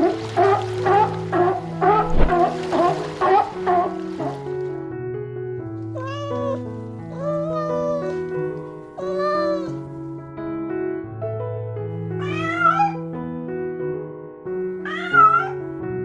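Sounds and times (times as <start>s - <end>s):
cat meowing: 5.8s - 9.8s, 12.2s - 13.1s, 14.8s - 15.7s.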